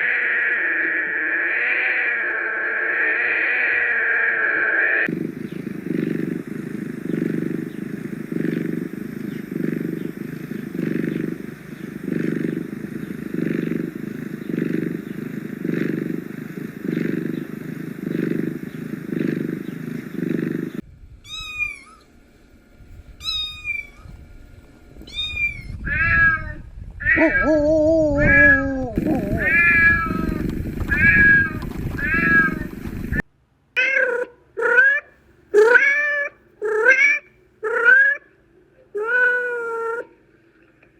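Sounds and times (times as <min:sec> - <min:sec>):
kitten mewing: 0:00.0 - 0:22.1, 0:25.0 - 0:33.1, 0:33.8 - 0:38.3, 0:38.9 - 0:40.2
cat purring: 0:05.0 - 0:20.8, 0:25.1 - 0:33.2, 0:36.6 - 0:37.0
cat meowing: 0:21.3 - 0:22.1, 0:23.2 - 0:24.0, 0:25.0 - 0:32.7, 0:33.8 - 0:38.3, 0:39.0 - 0:40.1.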